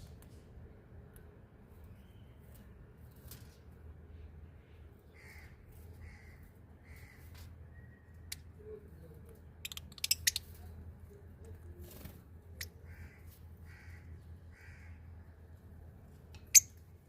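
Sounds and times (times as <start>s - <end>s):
soft bird chirps: 1.7s - 5.5s, 6.9s - 12.0s.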